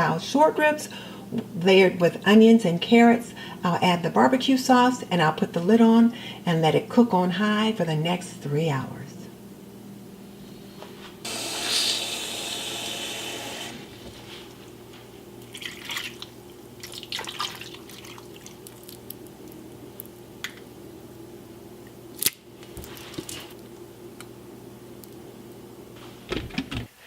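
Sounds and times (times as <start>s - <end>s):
liquid pouring: 15.4s - 19.2s.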